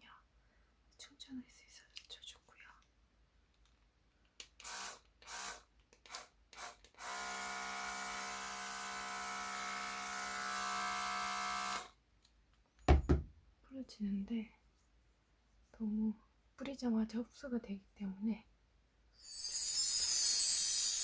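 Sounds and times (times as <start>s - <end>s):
small motor whining: 9.4s - 11.9s, 19.2s - 21.0s.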